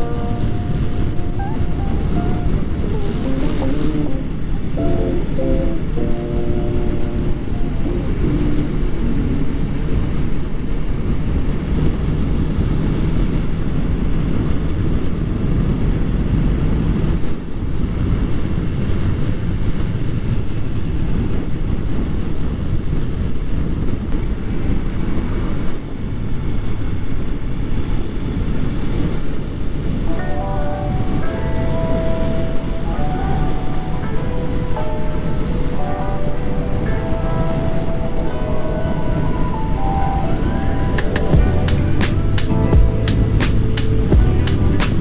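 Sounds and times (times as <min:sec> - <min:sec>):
wind and road noise: 0:00.0 - 0:45.0.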